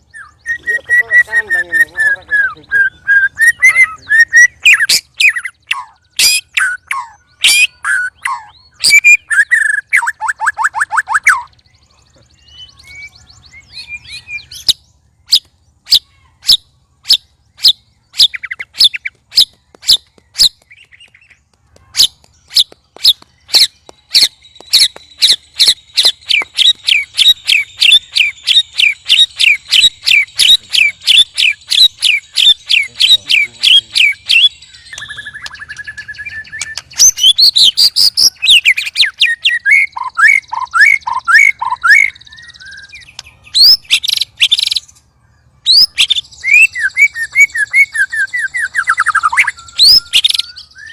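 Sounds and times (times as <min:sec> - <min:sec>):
bird whistle: 0:00.0 - 0:11.7, 0:21.9 - 0:44.9, 0:45.6 - 0:50.9
bird clicking calls: 0:15.3 - 0:42.2, 0:43.0 - 0:44.9.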